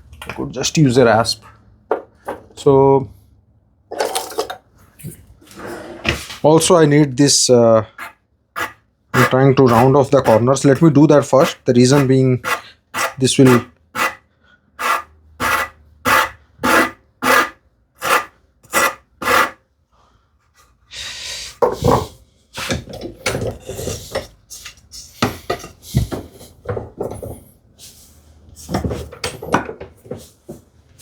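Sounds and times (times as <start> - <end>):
hand rasp on wood: 8.0 - 14.2, 14.8 - 19.6.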